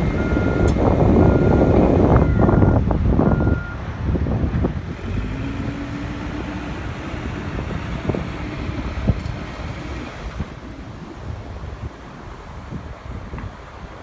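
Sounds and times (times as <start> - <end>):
heavy machine engine rumbling: 0.0 - 14.0
back-up alarm beep: 0.1 - 3.8.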